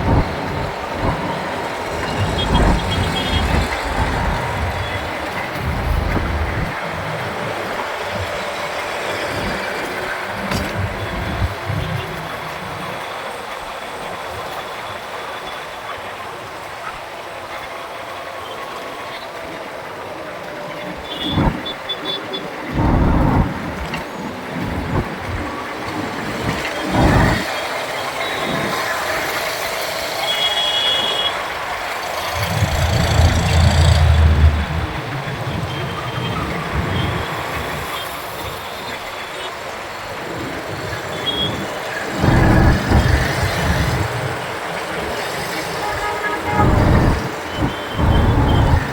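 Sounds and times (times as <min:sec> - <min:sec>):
city traffic noise: 0:00.0 - 0:48.9
deep low rumble: 0:01.9 - 0:06.8, 0:22.7 - 0:23.8, 0:32.4 - 0:35.1, 0:46.6 - 0:48.9.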